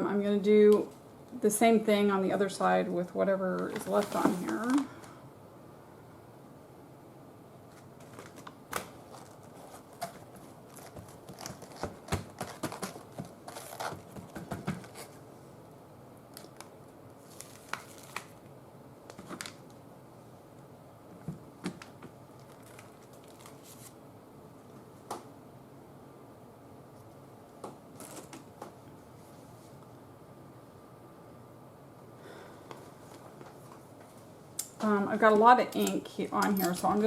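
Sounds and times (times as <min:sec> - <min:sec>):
paper rustling: 0:03.7 - 0:04.8, 0:07.7 - 0:15.2, 0:16.4 - 0:18.4, 0:22.4 - 0:24.0.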